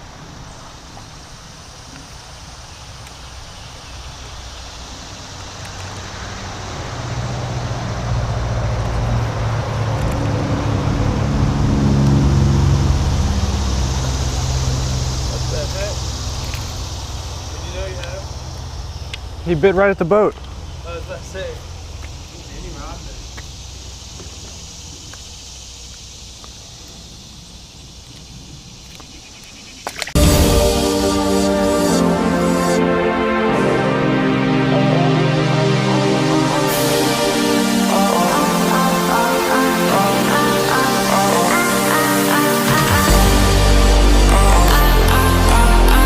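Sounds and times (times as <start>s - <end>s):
insects hissing: 0.0s - 8.4s, 12.2s - 46.0s
engine humming: 0.0s - 27.1s, 30.1s - 46.0s
low rumble: 30.2s - 32.5s, 42.4s - 46.0s
loud electronic music: 30.2s - 46.0s.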